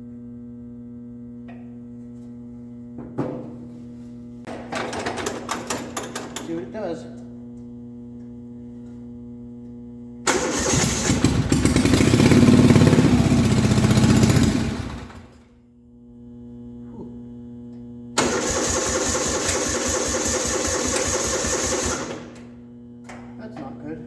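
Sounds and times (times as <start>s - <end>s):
steady low hum: 0.0s - 18.2s
tractor engine starting and running: 4.5s - 6.5s, 10.3s - 15.5s, 18.2s - 22.5s.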